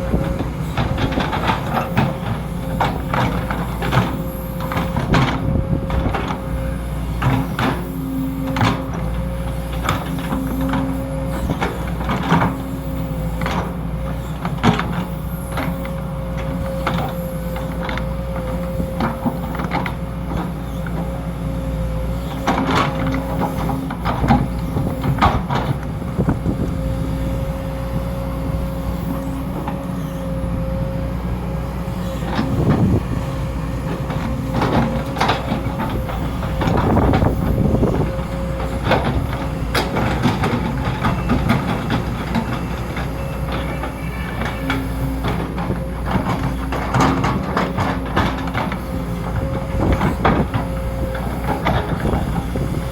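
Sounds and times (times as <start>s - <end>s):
excavator diesel engine running: 0.0s - 52.9s
hydraulic whine: 21.9s - 46.9s.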